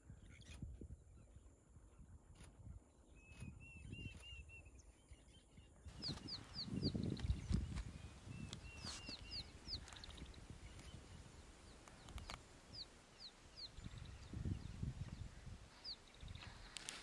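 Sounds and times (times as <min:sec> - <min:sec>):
birds whistling: 0:05.9 - 0:16.8.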